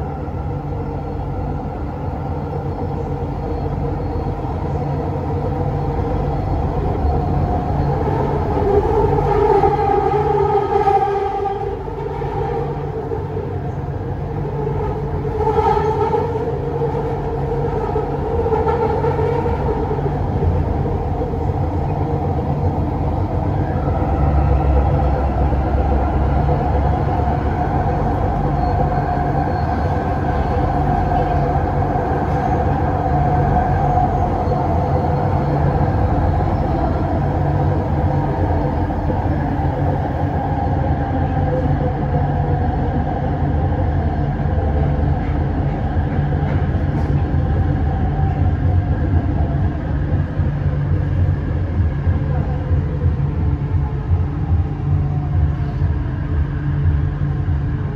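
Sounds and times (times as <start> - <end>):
humming tone: 0.0 - 42.8
train running gear rumbling: 0.0 - 57.9.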